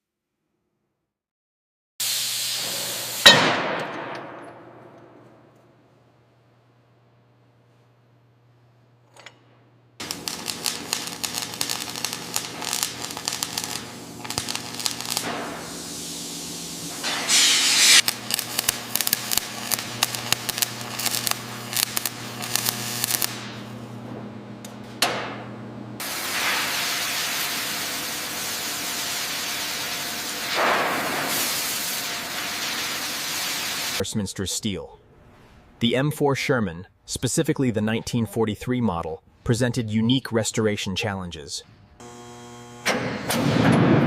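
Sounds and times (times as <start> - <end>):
spraying hiss: 2.0 - 3.2, 12.6 - 18.0, 26.0 - 34.0.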